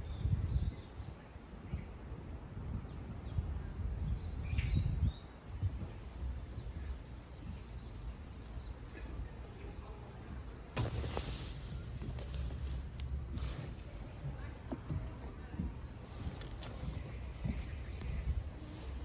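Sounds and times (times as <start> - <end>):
small birds chirping: 0.0 - 19.0
low outdoor rumble: 5.7 - 19.0.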